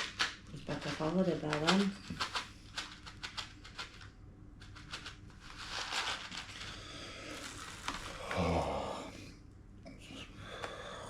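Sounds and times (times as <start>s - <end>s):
packet crackling and rustling: 0.0s - 8.5s.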